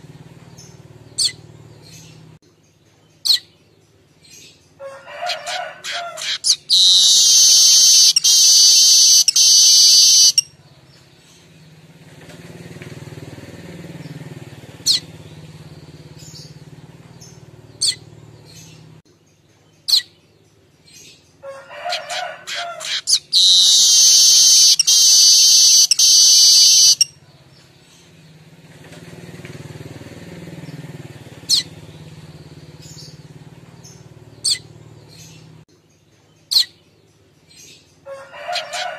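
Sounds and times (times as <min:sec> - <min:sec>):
bird calls and chips: 0:05.3 - 0:11.5, 0:21.9 - 0:28.2, 0:33.8 - 0:37.0
bird buzzing chatter song: 0:06.2 - 0:10.4, 0:22.9 - 0:27.1.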